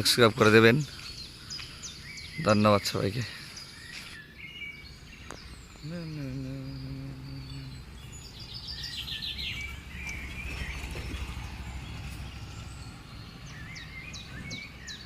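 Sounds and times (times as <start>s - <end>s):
birds calling: 0.0s - 15.0s
steady low rumble: 5.6s - 14.3s.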